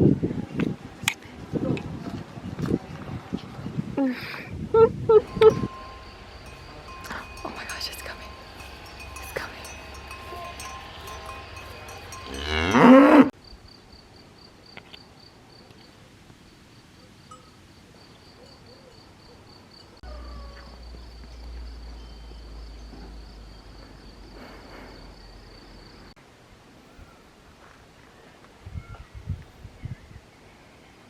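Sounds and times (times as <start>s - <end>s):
insect chirping: 5.2s - 15.6s
cow mooing: 8.2s - 13.3s.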